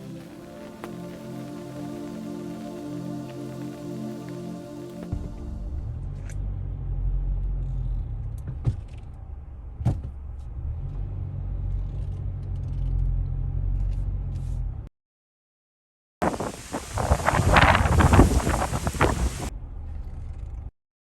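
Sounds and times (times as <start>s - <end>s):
low rumble: 5.1s - 8.6s.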